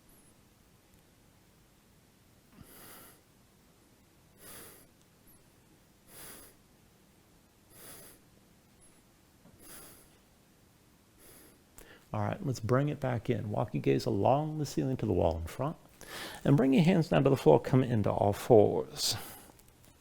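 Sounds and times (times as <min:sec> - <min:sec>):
faint hissy breaths: 0:02.4 - 0:10.4, 0:11.0 - 0:12.6, 0:15.7 - 0:16.6, 0:19.0 - 0:20.0.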